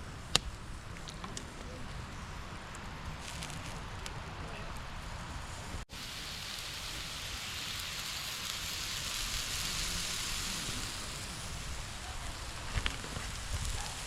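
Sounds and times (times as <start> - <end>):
food sizzling on a grill: 3.2 - 14.0.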